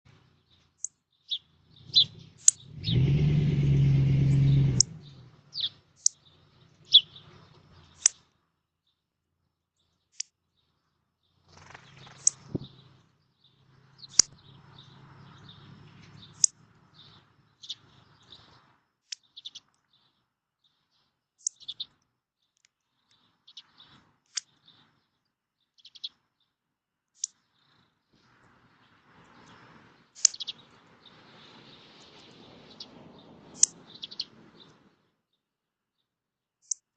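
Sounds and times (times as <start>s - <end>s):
songbirds chirping: 0.0s - 36.9s.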